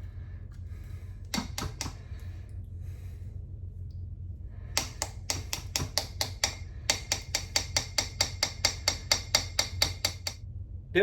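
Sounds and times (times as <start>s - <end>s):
whisk tapping against pot: 4.8s - 10.4s.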